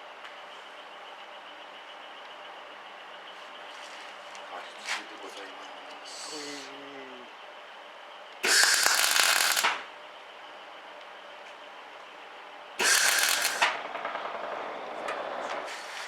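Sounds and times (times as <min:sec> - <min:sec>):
welder arc crackling: 0:08.4 - 0:09.8, 0:12.8 - 0:13.8.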